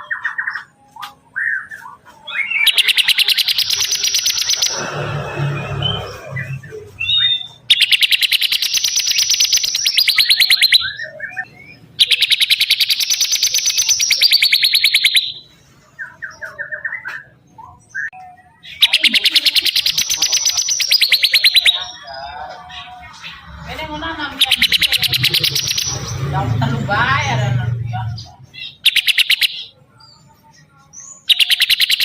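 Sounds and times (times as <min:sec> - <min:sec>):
bird chirps: 0:00.0 - 0:32.0
bird trilling: 0:02.4 - 0:15.5, 0:18.7 - 0:29.8, 0:31.2 - 0:32.0.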